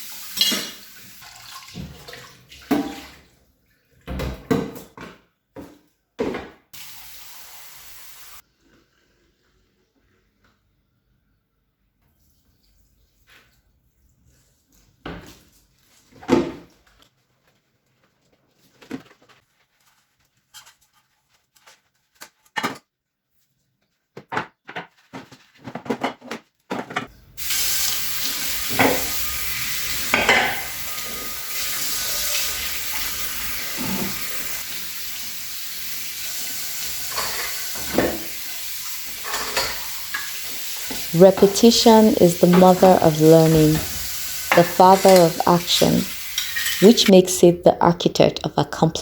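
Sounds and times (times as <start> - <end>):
food sizzling in a pan: 0.0 - 1.2, 6.8 - 8.4, 27.4 - 47.1
utensils clinking on dishes: 0.3 - 0.9, 28.7 - 32.6, 37.1 - 38.3, 39.2 - 47.1.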